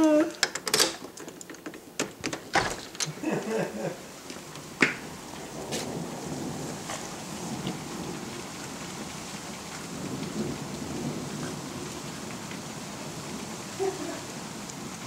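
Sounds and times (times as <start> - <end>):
steady rain falling: 0.0 - 15.0
rolling thunder rumble: 2.6 - 15.0.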